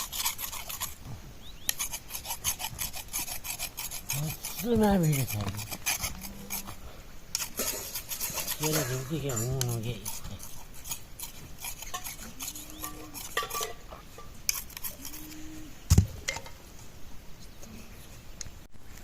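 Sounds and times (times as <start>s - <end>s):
metal pots and utensils clinking: 11.8s - 14.4s.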